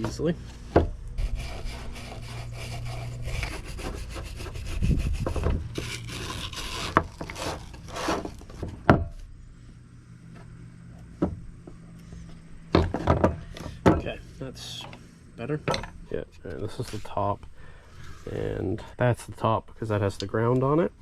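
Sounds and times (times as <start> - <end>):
scraping and rubbing of parts: 0.0 - 9.2, 11.7 - 18.6
low steady hum: 0.0 - 21.0.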